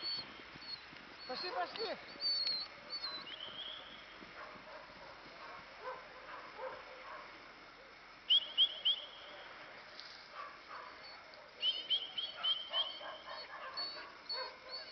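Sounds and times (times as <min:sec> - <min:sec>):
small bird high chirps: 0:00.0 - 0:04.0.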